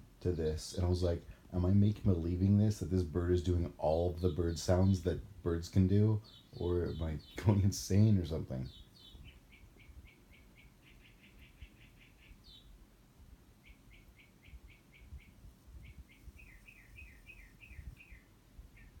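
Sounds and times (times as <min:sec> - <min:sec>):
faint bird chirps: 0:06.2 - 0:07.6, 0:08.4 - 0:12.8, 0:13.5 - 0:19.0.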